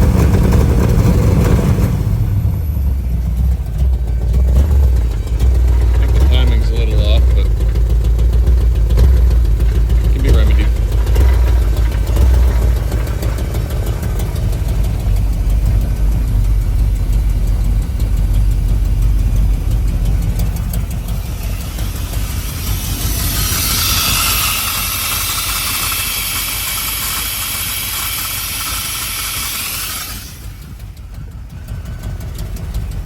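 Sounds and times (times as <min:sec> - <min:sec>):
truck engine idling: 0:00.0 - 0:33.0
loud hiss: 0:20.9 - 0:30.8.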